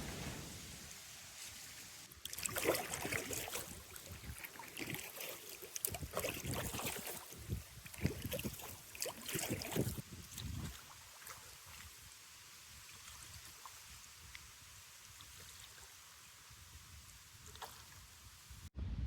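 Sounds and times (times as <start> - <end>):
paddle splashing in water: 0.0 - 12.1, 17.4 - 18.1.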